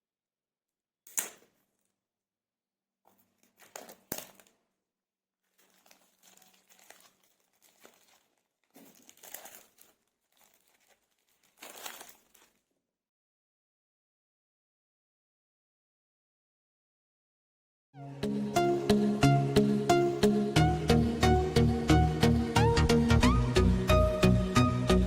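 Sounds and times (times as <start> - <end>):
packaging crinkling and tearing: 3.1 - 4.6, 5.5 - 12.7.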